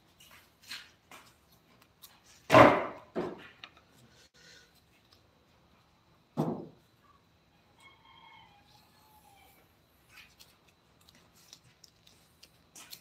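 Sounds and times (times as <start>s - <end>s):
hard objects thumping: 2.5s - 3.7s, 6.4s - 6.8s.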